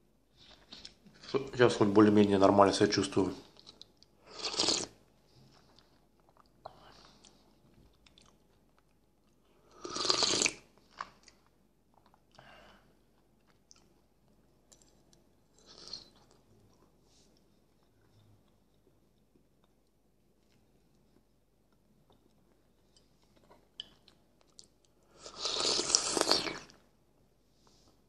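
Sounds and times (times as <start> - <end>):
person chewing food: 3.5 - 12.4, 13.1 - 26.8.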